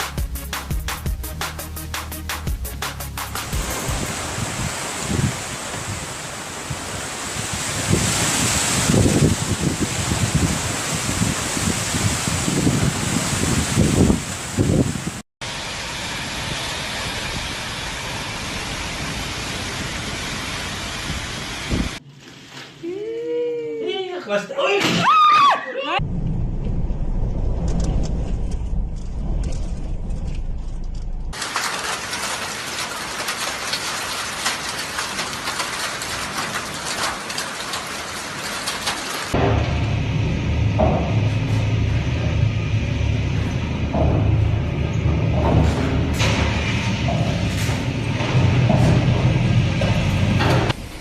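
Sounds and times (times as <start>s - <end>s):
hissing storm with crackling patter: 3.2s - 22.0s, 31.3s - 40.0s
windstorm rushing: 3.5s - 22.0s.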